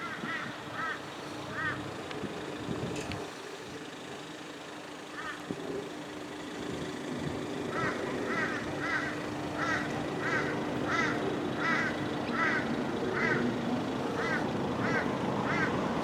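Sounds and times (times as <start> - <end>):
bird calling: 7.7 - 15.9.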